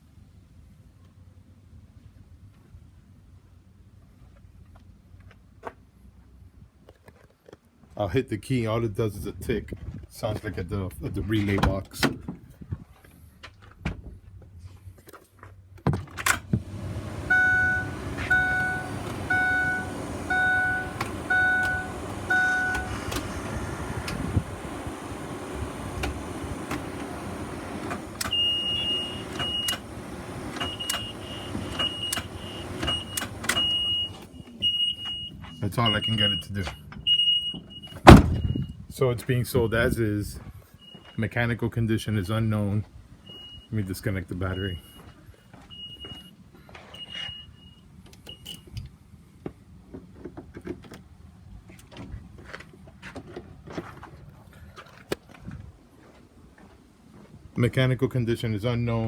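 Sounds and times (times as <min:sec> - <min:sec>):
high warning chime: 0:16.8 - 0:23.7, 0:28.2 - 0:29.8, 0:30.5 - 0:38.7.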